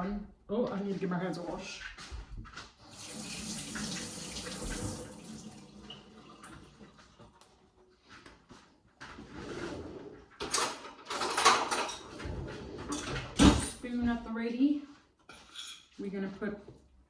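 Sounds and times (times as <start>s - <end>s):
kitchen tap running: 2.8s - 7.5s
kitchenware knocks and clatter: 10.4s - 13.8s.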